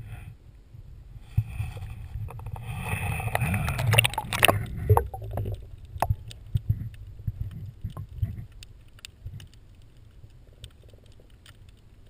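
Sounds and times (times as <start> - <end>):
water splashing around kayak: 1.2 - 6.5.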